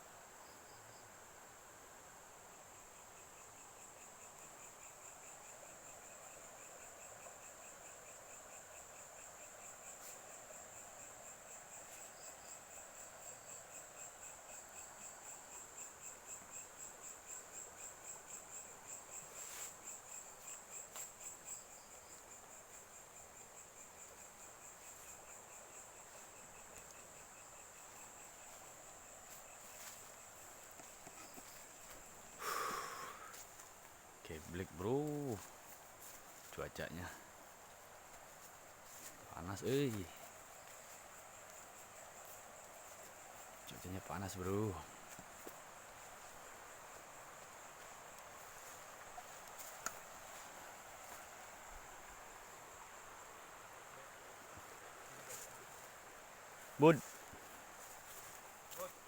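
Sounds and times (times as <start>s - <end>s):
high cricket trill: 0.0s - 59.0s
lower pulsed insect trill: 0.0s - 59.0s
faint clicks: 49.4s - 50.0s.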